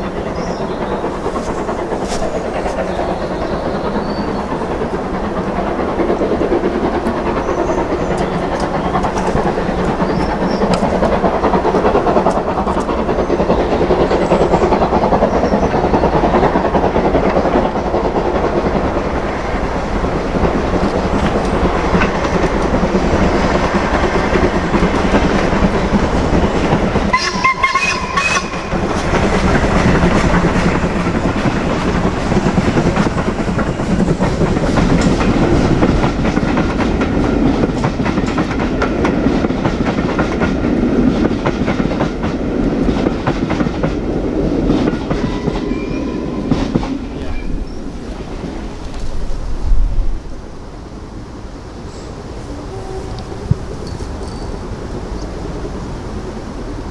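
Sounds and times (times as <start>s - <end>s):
train wheels clattering over rail joints: 0.0s - 56.6s
steam locomotive whistle: 19.9s - 30.2s, 45.1s - 47.8s, 51.9s - 53.8s.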